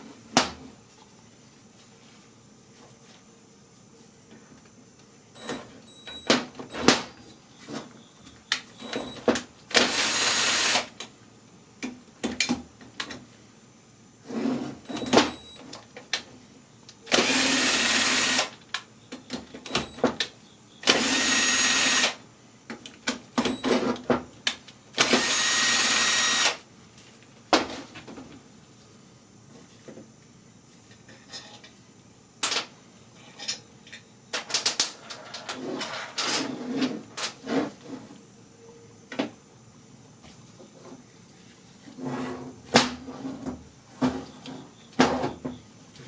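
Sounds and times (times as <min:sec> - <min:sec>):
power tool whining: 0:09.8 - 0:10.9, 0:17.1 - 0:18.5, 0:20.8 - 0:22.2, 0:25.0 - 0:26.6.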